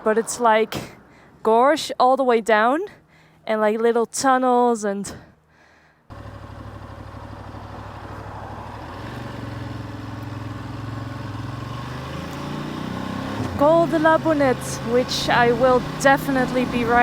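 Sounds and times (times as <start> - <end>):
motorcycle engine running: 6.1 - 17.0.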